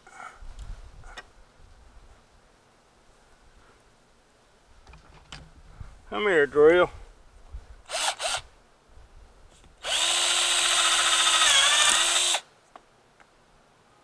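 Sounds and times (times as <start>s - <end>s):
electric drill running: 7.9s - 8.4s, 9.8s - 12.4s.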